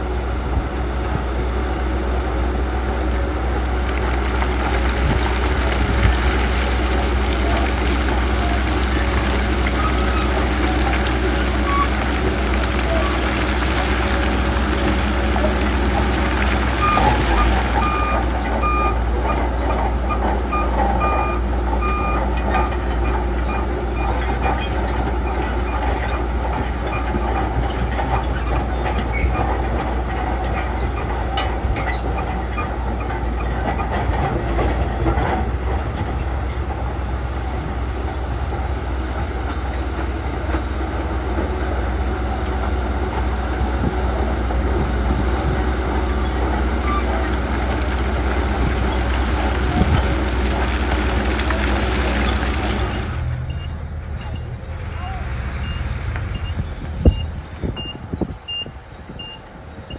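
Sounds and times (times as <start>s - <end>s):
steel tracks clattering: 0.0s - 56.8s
bulldozer diesel engine running: 0.0s - 59.9s
reversing alarm beeping: 20.5s - 22.2s, 53.5s - 54.6s, 55.6s - 59.9s.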